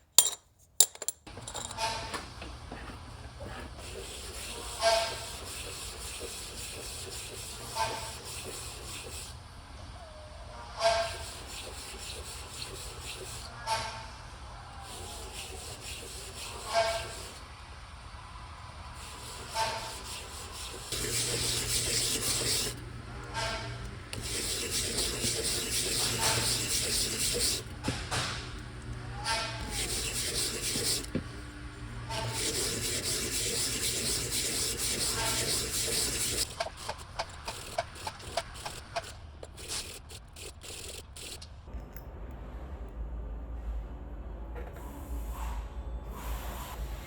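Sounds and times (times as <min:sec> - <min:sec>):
metal rubbing and scraping: 0:00.2 - 0:02.1, 0:14.8 - 0:17.4, 0:19.0 - 0:28.4, 0:29.2 - 0:31.2, 0:32.1 - 0:41.4.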